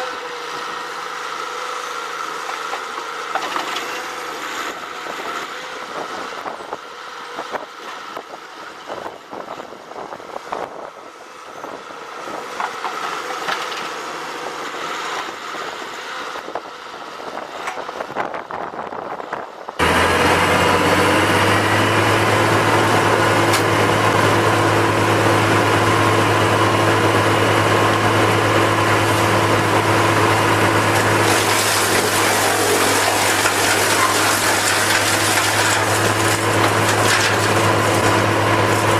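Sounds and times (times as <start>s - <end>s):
heavy machinery engine running: 0.0s - 38.9s
steady engine drone with deep hum: 16.4s - 38.9s.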